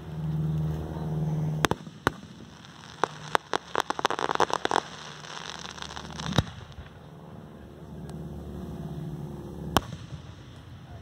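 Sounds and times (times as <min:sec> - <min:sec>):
steady low hum: 0:00.0 - 0:11.0
firework shells bursting: 0:01.6 - 0:07.0
crackling firework pops: 0:01.6 - 0:07.1, 0:09.7 - 0:10.7.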